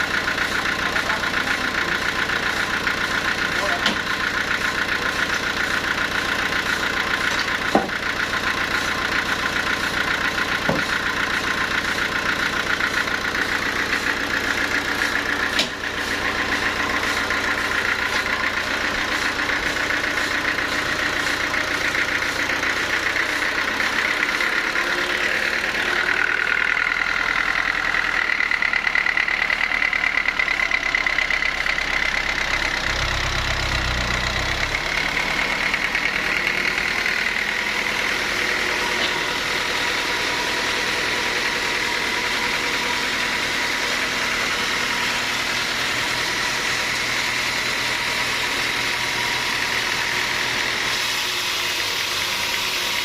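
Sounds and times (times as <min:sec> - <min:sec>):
sawmill machinery drone: 0:00.0 - 0:53.0
sharp knocks: 0:07.7 - 0:08.0, 0:15.6 - 0:15.8.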